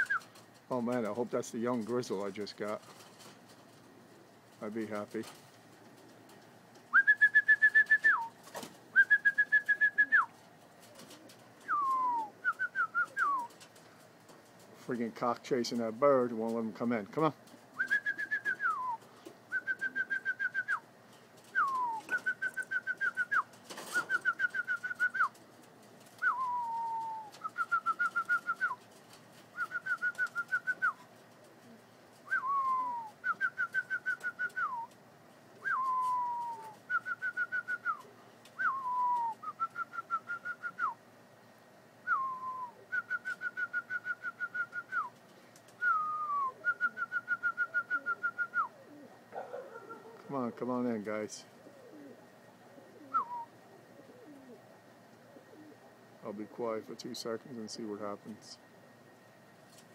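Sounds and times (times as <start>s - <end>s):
person whistling to call pigeons: 0.0s - 0.3s, 6.9s - 10.3s, 11.6s - 13.6s, 17.8s - 20.8s, 21.5s - 25.3s, 26.2s - 28.8s, 29.6s - 31.0s, 32.3s - 34.9s, 35.6s - 41.0s, 42.0s - 45.1s, 45.8s - 48.8s, 53.0s - 53.5s.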